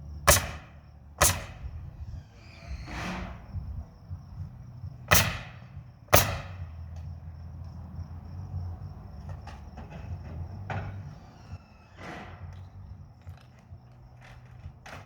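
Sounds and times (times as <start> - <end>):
steady low hum: 0.0 - 14.9
pneumatic nail gun firing: 0.2 - 3.4, 5.1 - 6.7, 10.7 - 12.6.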